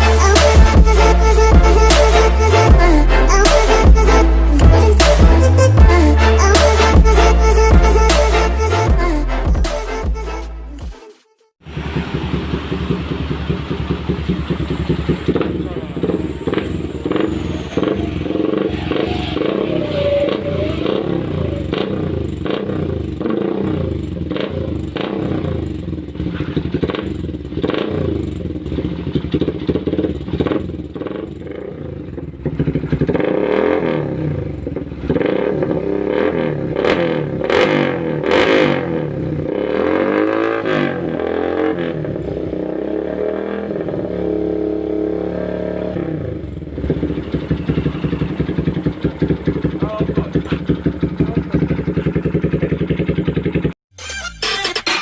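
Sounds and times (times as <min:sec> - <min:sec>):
motorcycle engine revving: 0:11.6 - 0:55.0.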